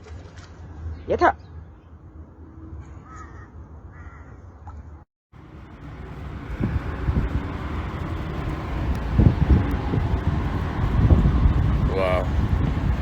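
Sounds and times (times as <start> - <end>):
low rumble: 5.4 - 13.0
wind gusts on microphone: 6.0 - 13.0.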